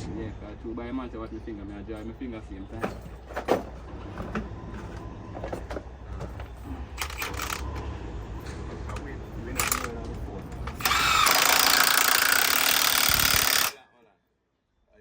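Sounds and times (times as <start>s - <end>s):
loud machine noise: 6.8s - 13.8s
metal parts clinking: 7.0s - 7.8s, 8.9s - 10.1s, 10.7s - 13.8s.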